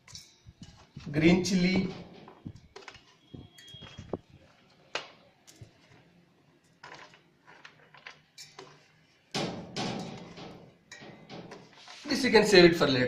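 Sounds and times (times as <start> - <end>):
clattering and rustling: 6.6 - 12.0.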